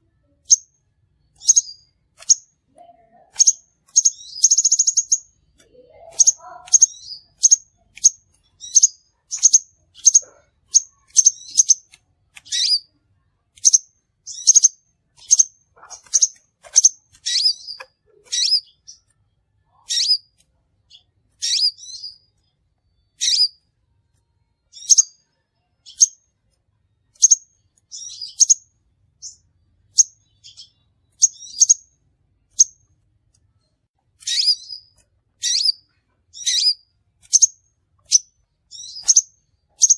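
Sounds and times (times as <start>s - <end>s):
bird high sharp chips: 1.4s - 2.6s, 3.2s - 12.9s, 13.5s - 19.1s, 34.2s - 35.8s.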